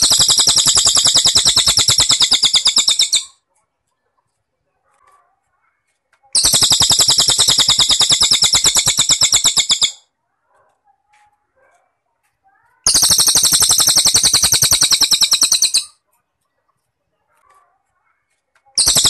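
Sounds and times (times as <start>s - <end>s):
rapid pulsed trill: 0.0s - 3.3s, 6.4s - 10.0s, 12.9s - 15.9s, 18.8s - 19.0s
faint small chirps: 0.0s - 19.0s.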